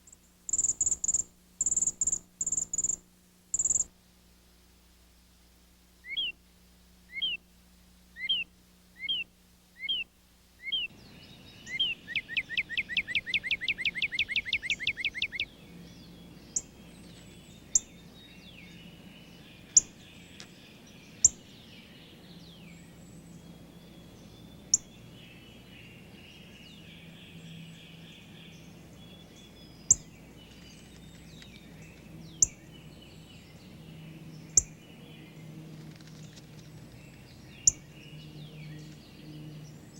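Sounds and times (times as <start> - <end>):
soft bird chatter with ticks: 0.0 - 3.9, 11.7 - 15.5, 29.2 - 39.7
songbird whistling and trilling: 0.5 - 3.9, 6.0 - 6.4, 7.1 - 7.4, 8.2 - 11.0, 11.6 - 15.5.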